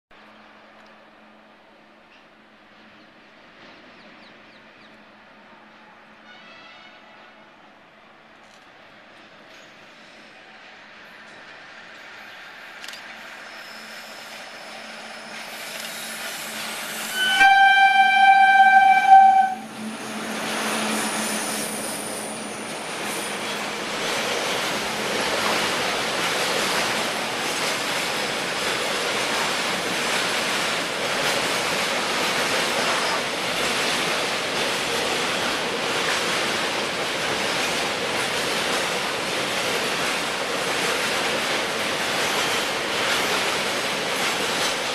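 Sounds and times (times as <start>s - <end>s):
freight train wheels on rails: 0.2s - 44.9s
locomotive horn blast: 6.2s - 7.3s, 17.0s - 19.8s.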